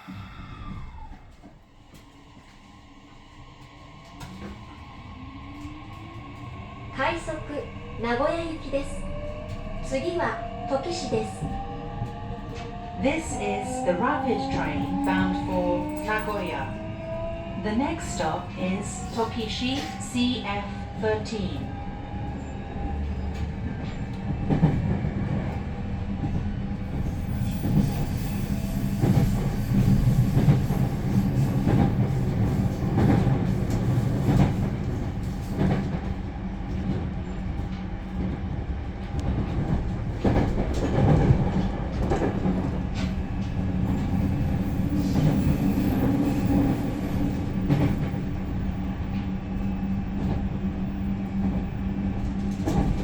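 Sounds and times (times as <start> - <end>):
train cabin hum: 0.1 - 53.0.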